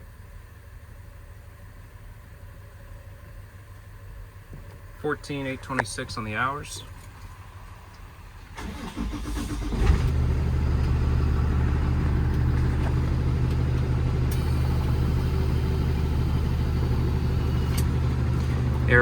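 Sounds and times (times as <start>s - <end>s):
diesel engine starting and idling: 8.4s - 19.0s
diesel engine starter cranking: 8.5s - 19.0s.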